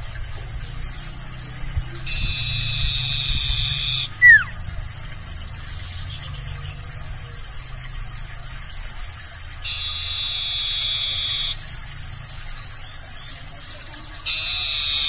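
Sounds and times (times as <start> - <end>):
low background hum: 0.0 - 15.0
bird buzzing trill: 1.9 - 4.6, 9.6 - 12.2, 14.0 - 15.0.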